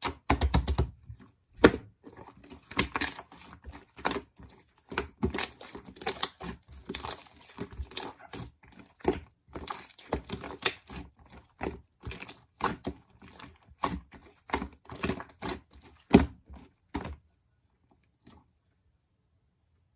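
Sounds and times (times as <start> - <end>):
small objects tapping and crinkling: 2.5 - 16.2.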